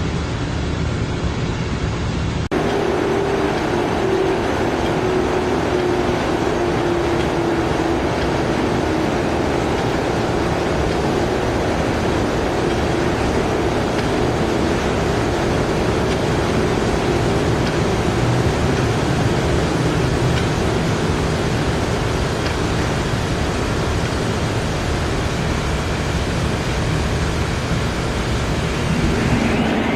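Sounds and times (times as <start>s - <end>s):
lathe running: 2.5s - 19.7s.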